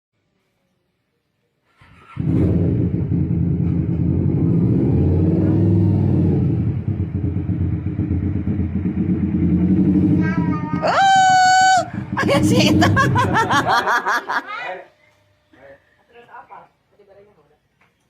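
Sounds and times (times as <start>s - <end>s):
motorcycle engine running: 2.2s - 13.7s.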